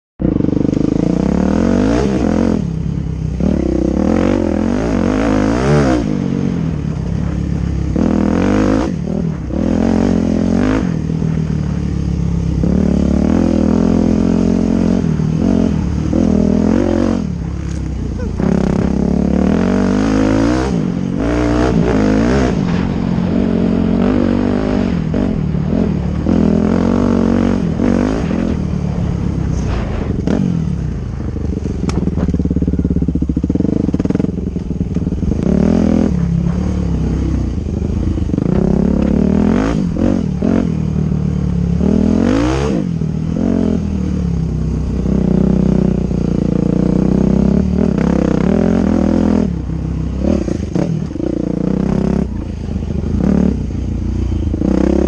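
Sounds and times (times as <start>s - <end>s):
dirt bike engine revving: 0.2s - 55.0s.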